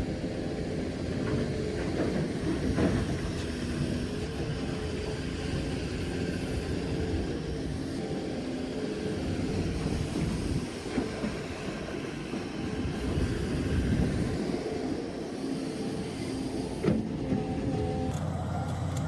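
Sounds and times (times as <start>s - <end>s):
diesel engine rumble: 16.4s - 19.0s.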